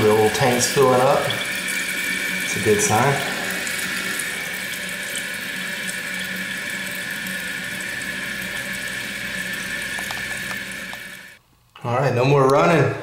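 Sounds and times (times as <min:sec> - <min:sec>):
toilet tank refilling hiss: 0:00.0 - 0:11.4.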